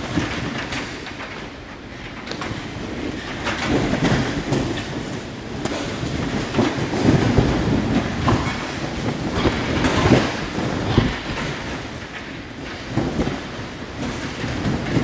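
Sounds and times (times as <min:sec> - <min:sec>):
gusting wind: 0:00.0 - 0:15.0.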